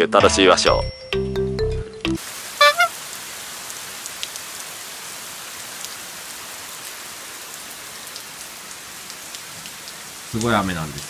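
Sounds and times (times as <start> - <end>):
heavy rain falling: 2.2 - 11.0
brief rising pitched sound: 2.6 - 2.9.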